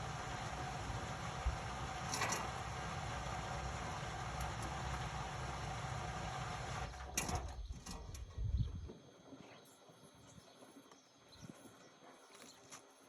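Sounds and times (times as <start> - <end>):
washing machine running: 0.0 - 8.2.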